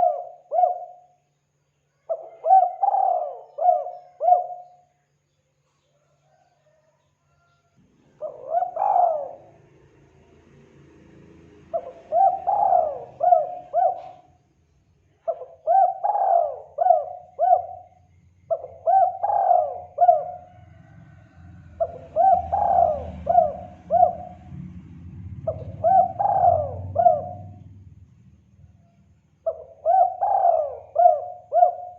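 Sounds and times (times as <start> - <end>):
dove cooing: 0.0 - 1.2, 2.1 - 4.9, 8.1 - 9.8, 11.7 - 14.4, 15.2 - 24.6, 25.4 - 27.7, 29.4 - 31.9.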